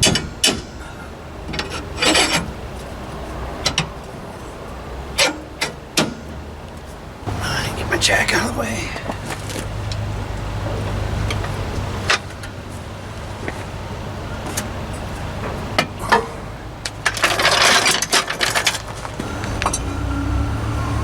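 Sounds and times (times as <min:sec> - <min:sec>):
metal clinks and knocks: 0:15.4 - 0:19.9.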